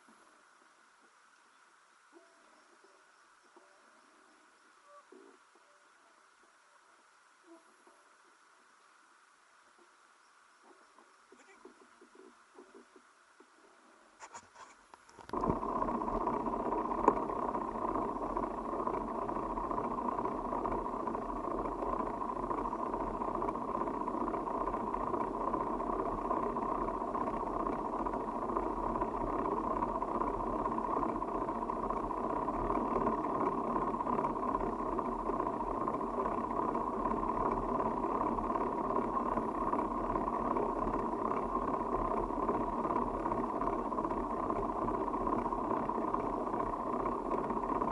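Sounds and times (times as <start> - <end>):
bicycle tyre noise: 14.2 - 47.9.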